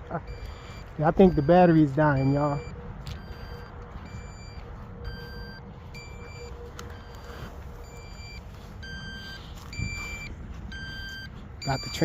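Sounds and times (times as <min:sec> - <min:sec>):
alternating electronic alarm beeps: 0:00.0 - 0:12.0
wind rumble on microphone: 0:02.6 - 0:11.9.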